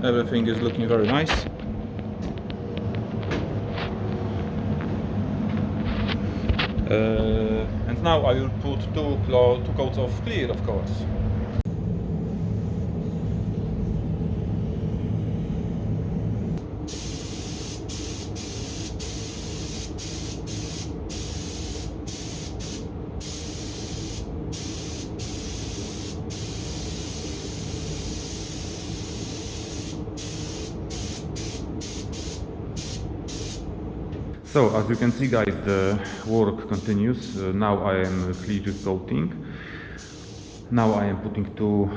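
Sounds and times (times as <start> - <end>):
steady low hum: 0.0 - 41.9
paint spray gun hissing: 16.9 - 33.7, 34.6 - 39.0, 40.0 - 41.0.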